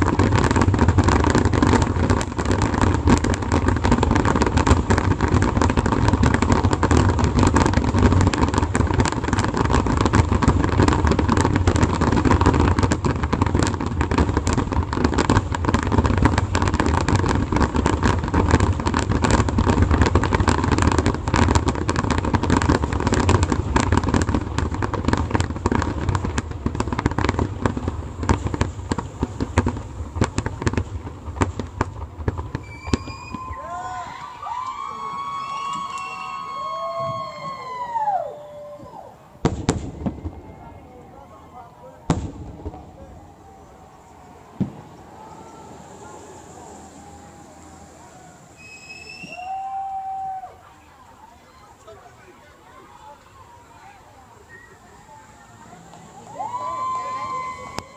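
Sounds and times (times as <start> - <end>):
fireworks bursts and crackle: 0.0 - 57.9.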